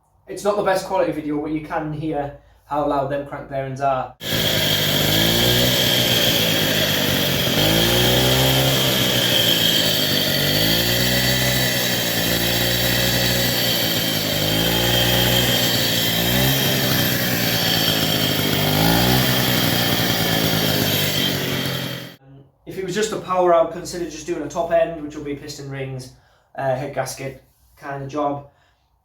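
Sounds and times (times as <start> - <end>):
rattling crank bearings: 4.2 - 22.2
two-stroke engine revving: 4.2 - 22.2.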